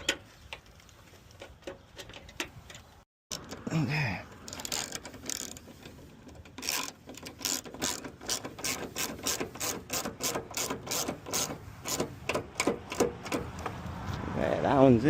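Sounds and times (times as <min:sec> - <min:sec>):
hand ratchet clicking: 0:04.3 - 0:13.8.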